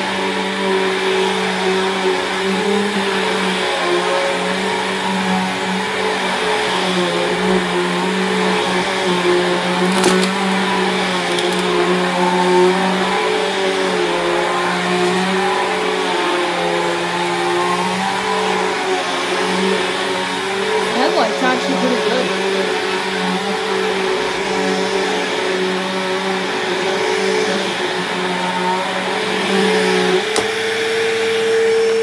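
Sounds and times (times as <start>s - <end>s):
vacuum cleaner motor humming: 0.0s - 32.0s.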